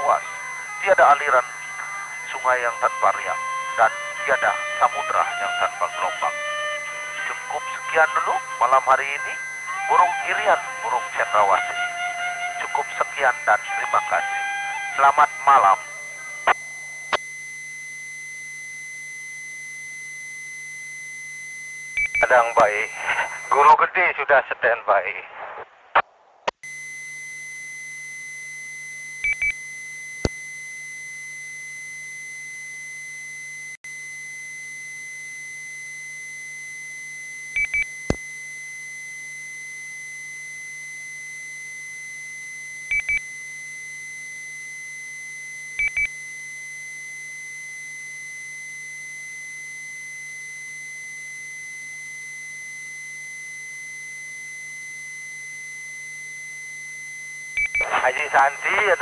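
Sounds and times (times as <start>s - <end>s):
high-pitched radio tone: 0.0s - 17.3s, 22.2s - 26.1s, 57.7s - 59.0s.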